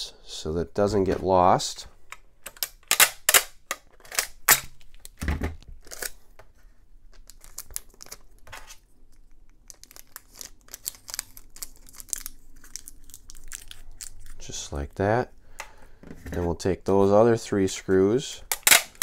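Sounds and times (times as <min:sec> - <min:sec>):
tape crinkling: 0:02.6 - 0:06.3, 0:07.1 - 0:14.5
adhesive tape tearing: 0:18.5 - 0:19.0.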